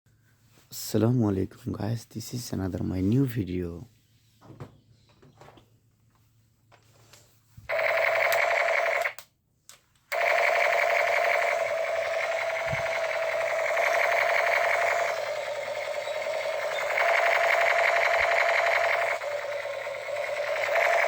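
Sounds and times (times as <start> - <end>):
toy gun electronic buzzing: 7.7 - 9.2, 10.1 - 21.0.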